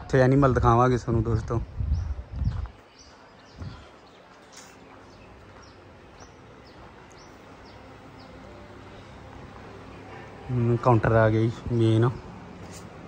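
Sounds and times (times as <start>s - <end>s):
faint background noise: 0.0s - 13.0s
bird chirping: 1.8s - 10.6s.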